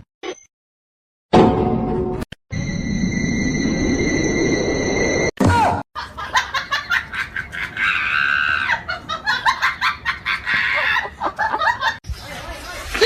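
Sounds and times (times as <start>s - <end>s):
people laughing in bursts: 6.0s - 12.0s.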